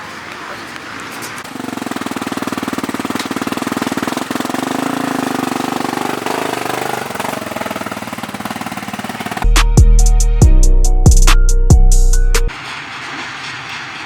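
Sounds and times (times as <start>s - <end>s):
motocross bike engine running: 1.2s - 9.5s.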